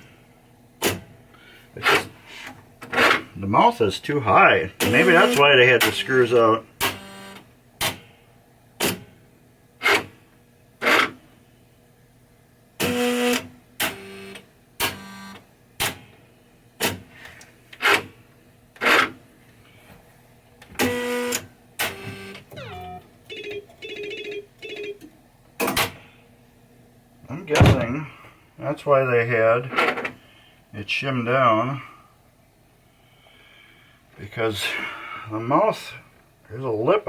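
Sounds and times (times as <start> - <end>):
electronic sound bursts: 4.8 - 5.5.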